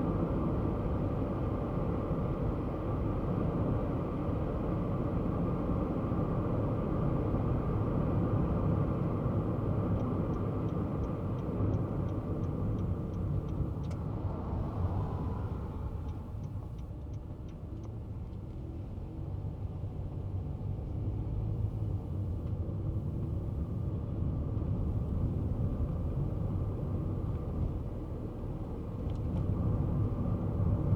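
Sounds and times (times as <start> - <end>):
car engine and road rumble: 0.0 - 30.9
light evenly spaced ticks: 9.9 - 14.1, 15.5 - 18.4.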